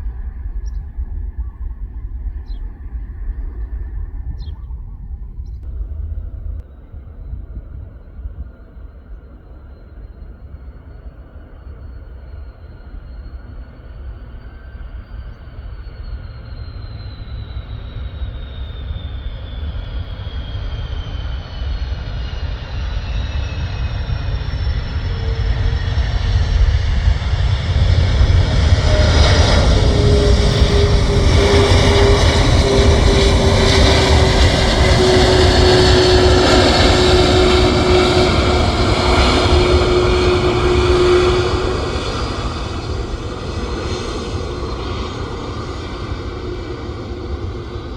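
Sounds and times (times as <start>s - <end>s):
aircraft engines roaring: 0.0s - 47.9s
high whine falling in pitch: 26.9s - 46.2s.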